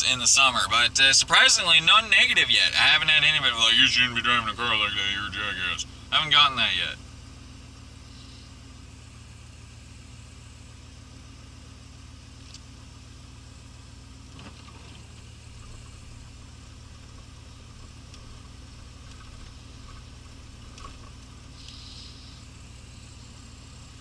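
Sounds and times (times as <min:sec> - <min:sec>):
car engine running at low revs: 0:00.0 - 0:24.0
faint clicks: 0:20.7 - 0:21.8.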